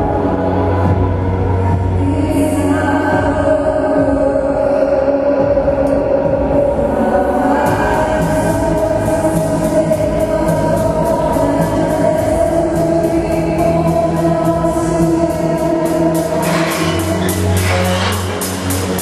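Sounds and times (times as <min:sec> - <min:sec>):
deep bass note: 0:16.2 - 0:19.0.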